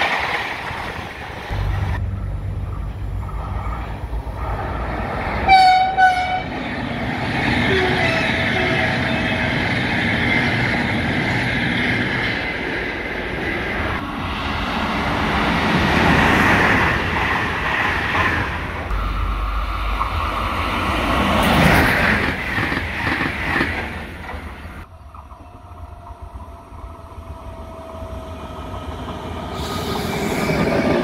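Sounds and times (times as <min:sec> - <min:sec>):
train passing at speed: 0:00.0 - 0:31.0
train horn blasts: 0:05.4 - 0:06.6, 0:07.7 - 0:09.5.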